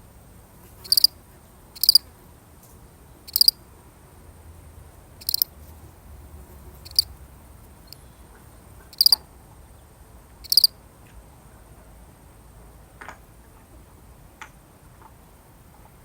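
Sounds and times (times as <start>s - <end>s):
cricket chirping: 0.8s - 1.2s, 1.8s - 2.1s, 3.2s - 3.7s, 5.0s - 5.6s, 6.4s - 9.3s, 10.4s - 10.8s.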